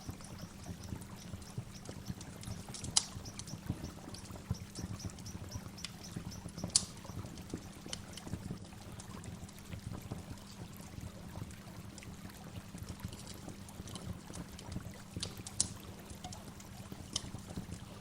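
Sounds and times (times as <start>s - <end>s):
birdsong chirps: 0.0s - 7.3s.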